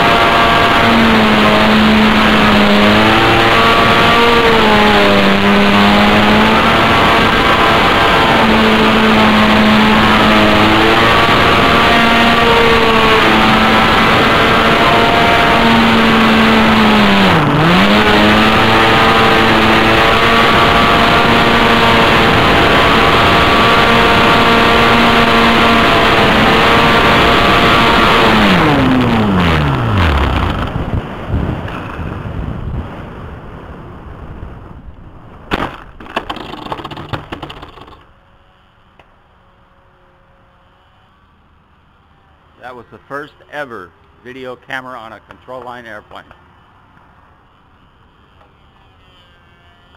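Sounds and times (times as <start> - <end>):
model airplane engine running: 0.0 - 32.4, 36.0 - 49.9
wind noise: 0.0 - 37.4.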